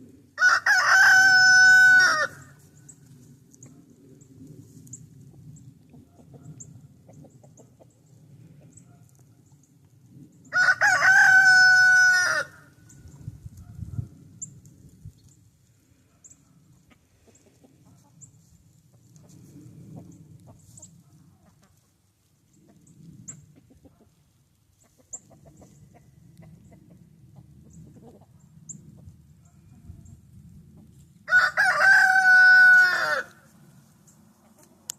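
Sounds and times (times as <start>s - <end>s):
rooster crowing: 0.4s - 2.6s, 10.5s - 12.7s, 31.3s - 33.5s.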